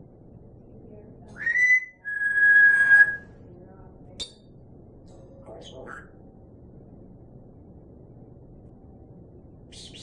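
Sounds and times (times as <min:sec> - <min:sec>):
parrot whistling: 0:01.4 - 0:03.3.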